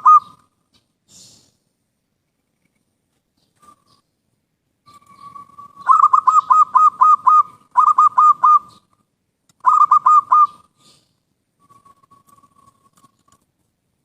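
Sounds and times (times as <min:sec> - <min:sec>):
dove cooing: 0:00.0 - 0:00.5, 0:04.9 - 0:08.9, 0:09.6 - 0:11.0.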